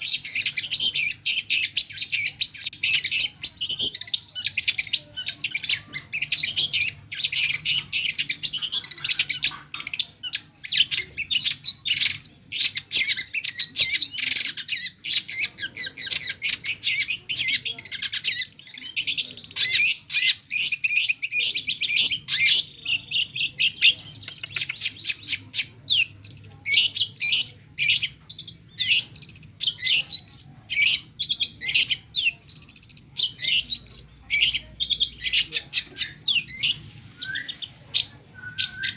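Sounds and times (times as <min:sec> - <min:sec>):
bird singing varied chirps: 0:00.0 - 0:38.9.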